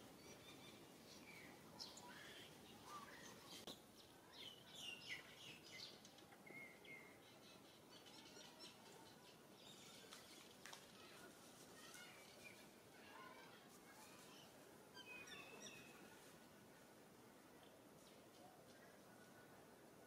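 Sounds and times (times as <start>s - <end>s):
small birds chirping: 0.0s - 11.2s, 11.8s - 16.1s.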